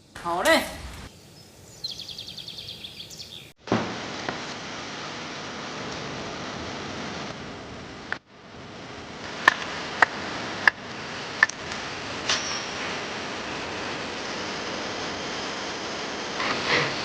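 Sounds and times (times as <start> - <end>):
steady rushing noise: 3.8 - 17.0.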